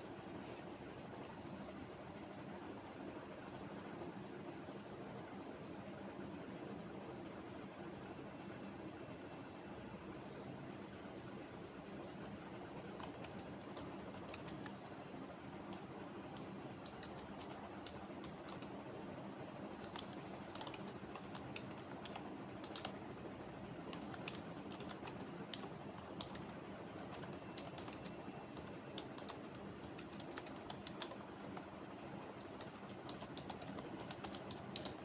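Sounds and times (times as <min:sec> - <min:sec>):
low background hum: 0:00.0 - 0:35.0
keyboard keystroke clicks: 0:13.0 - 0:14.8, 0:19.8 - 0:23.0, 0:23.9 - 0:31.7, 0:32.4 - 0:35.0.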